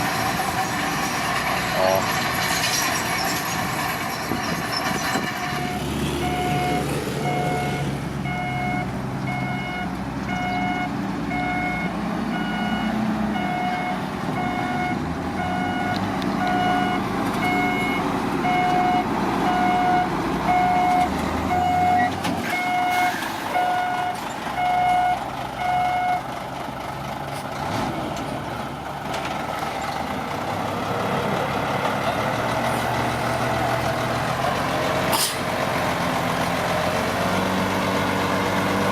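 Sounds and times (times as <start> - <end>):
heavy diesel machinery running: 0.0 - 38.9
reversing alarm beeping: 3.2 - 26.2.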